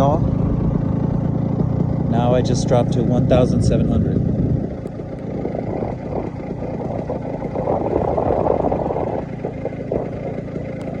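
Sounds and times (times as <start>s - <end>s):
paramotor engine idling: 0.0s - 11.0s
wind rushing over microphone: 2.1s - 11.0s.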